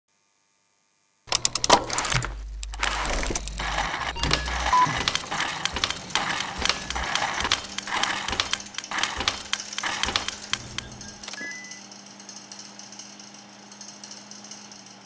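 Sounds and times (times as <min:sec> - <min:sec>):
small hard parts clattering: 0:01.3 - 0:11.4.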